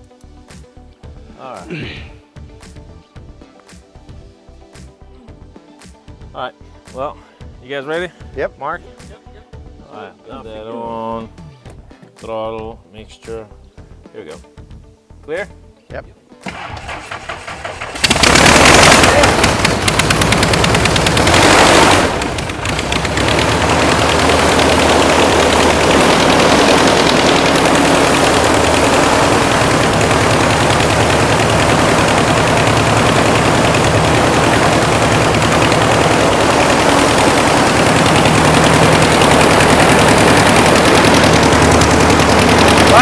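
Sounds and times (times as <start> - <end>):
piston engine running: 16.5 - 43.0.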